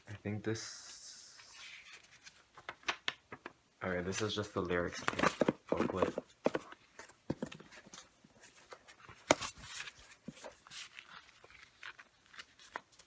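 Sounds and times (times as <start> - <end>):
paper and plastic rustling: 4.1 - 13.0.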